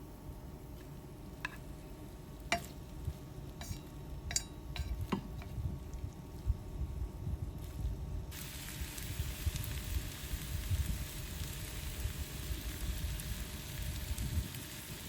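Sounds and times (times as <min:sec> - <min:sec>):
food sizzling in a pan: 0:01.4 - 0:05.6, 0:07.6 - 0:15.0.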